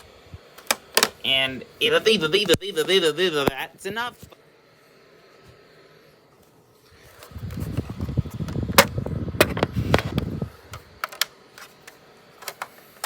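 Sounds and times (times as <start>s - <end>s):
plastic cases rustling and clacking: 11.0s - 12.9s.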